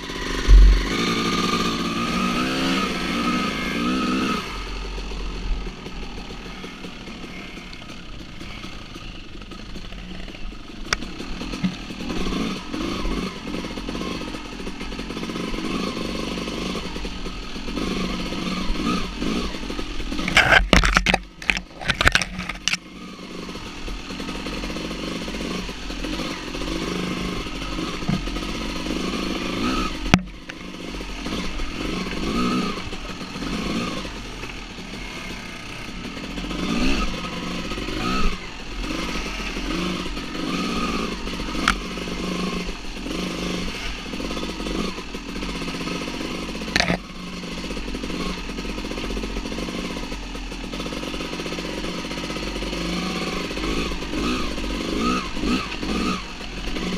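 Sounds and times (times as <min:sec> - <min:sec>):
dirt bike engine revving: 0:00.0 - 0:56.9
sharp knocks: 0:00.4 - 0:01.1.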